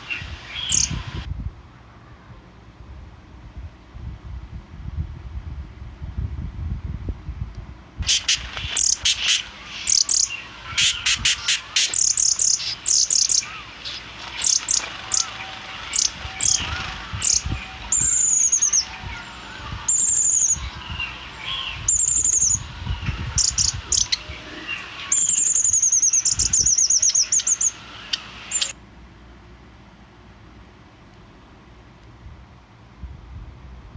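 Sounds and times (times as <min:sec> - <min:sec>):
birds chirping: 0:00.0 - 0:01.3, 0:08.0 - 0:28.8.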